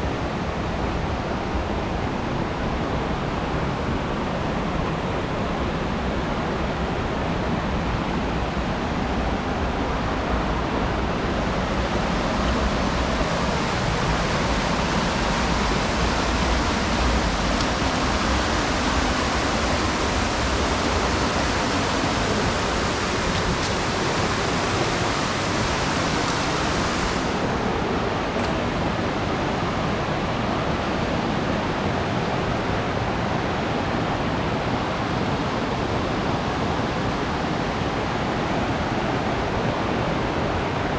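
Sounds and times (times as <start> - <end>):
waterfall rushing: 10.8 - 31.2.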